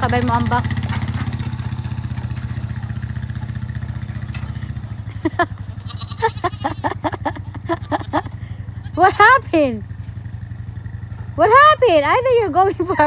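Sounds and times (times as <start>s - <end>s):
vehicle engine idling: 0.0s - 13.0s
goats bleating: 5.5s - 9.5s.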